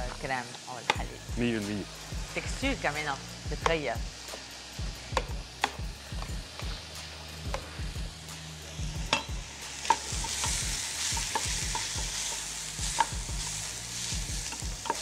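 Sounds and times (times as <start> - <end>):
vegetables sizzling in a pot: 0.0 - 15.0
utensils knocking against pots: 9.1 - 10.6, 14.5 - 15.0.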